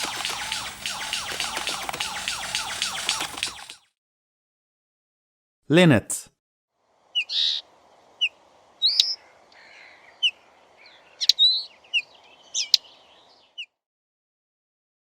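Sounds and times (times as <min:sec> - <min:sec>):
linnet twittering: 0:00.0 - 0:03.9, 0:07.0 - 0:13.7
sharp clicks: 0:00.0 - 0:03.9.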